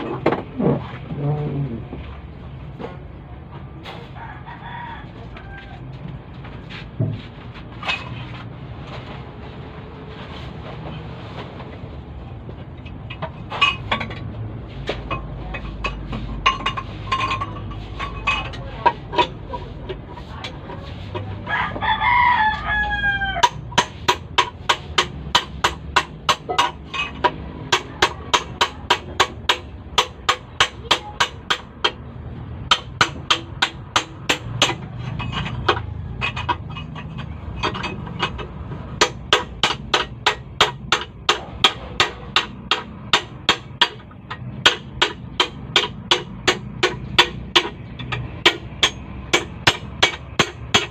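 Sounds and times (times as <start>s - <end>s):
rooster crowing: 4.2s - 5.9s, 21.4s - 23.6s
scattered knocks: 23.4s - 50.9s.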